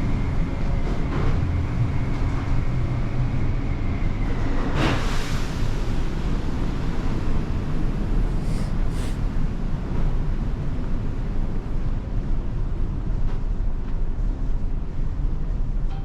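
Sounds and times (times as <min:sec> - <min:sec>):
brief high hisses: 0:08.4 - 0:09.2.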